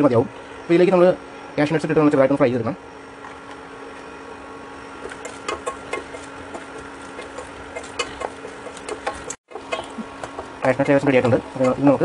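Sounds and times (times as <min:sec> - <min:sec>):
steady low hum: 0:00.0 - 0:12.0
nuts frying in hot oil: 0:05.2 - 0:12.0.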